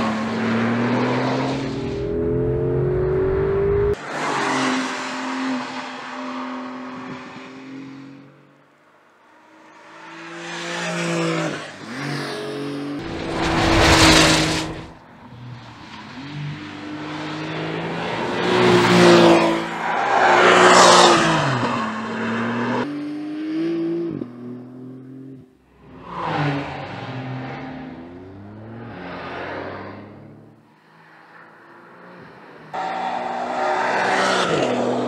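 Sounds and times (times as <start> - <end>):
car engine accelerating: 0.0 - 4.0, 13.0 - 22.8
loud rushing noise: 13.0 - 15.1.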